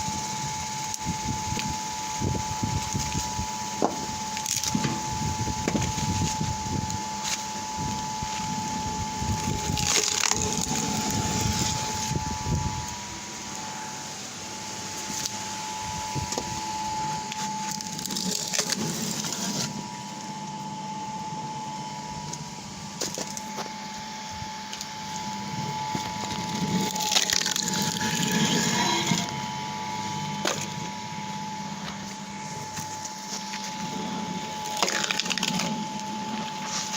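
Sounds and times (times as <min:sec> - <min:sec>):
log splitter motor whine: 0:00.0 - 0:36.9
wood cracking and splintering: 0:03.0 - 0:06.4, 0:09.2 - 0:12.2, 0:17.3 - 0:19.7, 0:26.0 - 0:29.4, 0:34.5 - 0:35.8.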